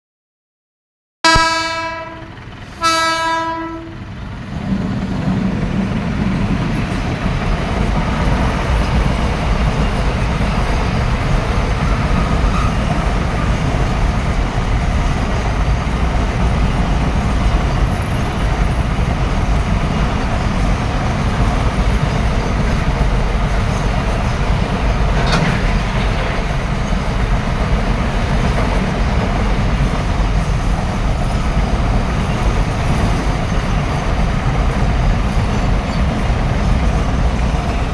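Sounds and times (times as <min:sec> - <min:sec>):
train horn blowing: 0:01.2 - 0:04.2
train rumbling past: 0:01.3 - 0:37.9
wheels clattering on rails: 0:01.5 - 0:37.9.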